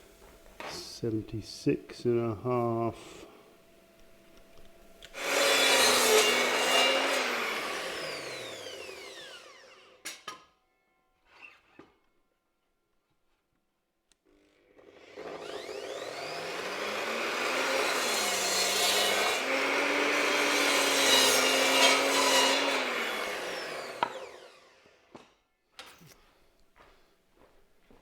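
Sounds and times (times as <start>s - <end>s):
power saw cutting timber: 5.1s - 10.3s, 14.8s - 25.2s.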